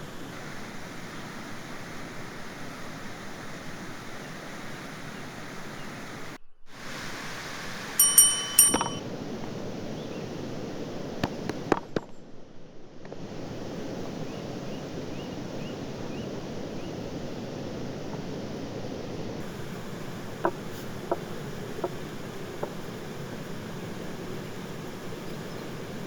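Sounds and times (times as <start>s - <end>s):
steady outdoor noise: 0.0s - 26.0s
metal utensils clinking: 8.0s - 9.0s
light knocks: 20.2s - 22.9s.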